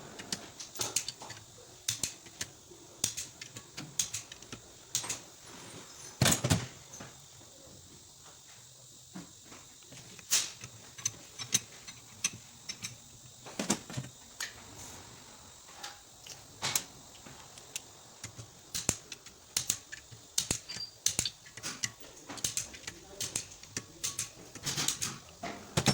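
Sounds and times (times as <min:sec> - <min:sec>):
metallic clinks of hand tools: 0:19.6 - 0:25.9.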